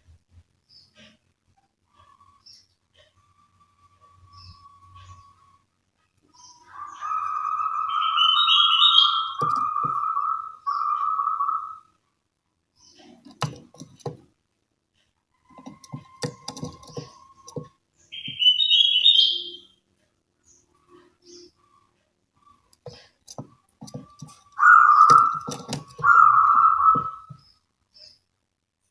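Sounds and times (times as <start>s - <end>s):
bird whistling call: 6.5s - 11.9s, 18.1s - 19.7s, 24.6s - 27.3s.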